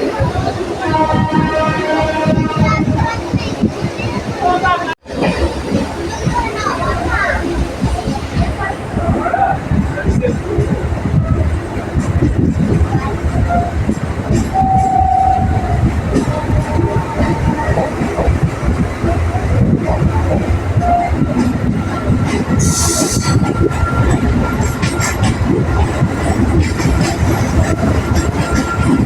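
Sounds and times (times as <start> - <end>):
electric train rumble: 0.0 - 29.0
wheel clatter over rails: 11.9 - 29.0.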